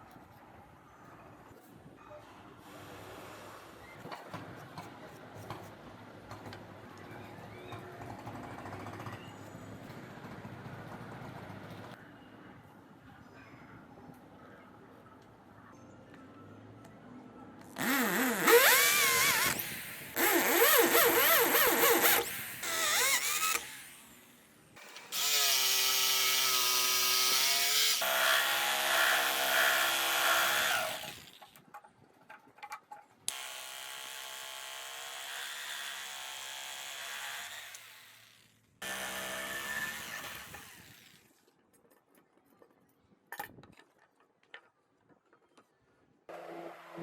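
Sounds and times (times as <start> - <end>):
power tool cutting wood: 17.8 - 24.1, 24.8 - 31.4, 33.3 - 41.2.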